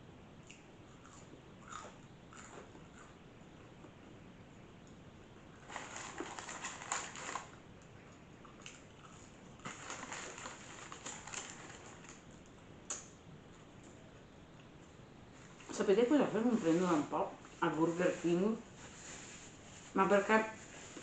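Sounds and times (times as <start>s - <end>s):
crunchy chewing: 0.4s - 15.6s.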